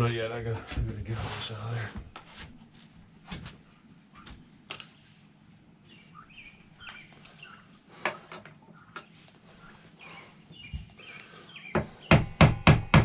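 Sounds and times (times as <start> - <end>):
bird chirps: 5.8 - 12.2.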